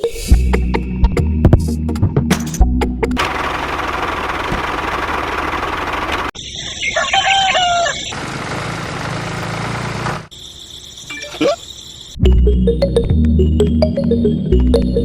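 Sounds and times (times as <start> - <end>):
rooster crowing: 6.7 - 8.2.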